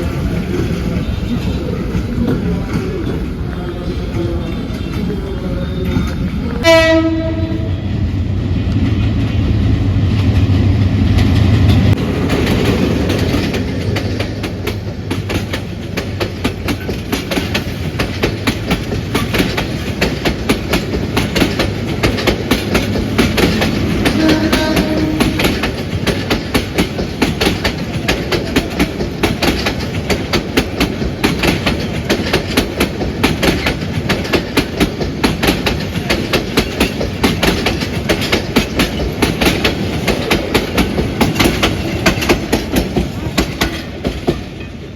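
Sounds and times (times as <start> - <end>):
locomotive rumble: 0.0 - 44.9
train horn blast: 6.6 - 7.9, 24.0 - 25.6
train wheels clickety-clack: 8.7 - 44.9.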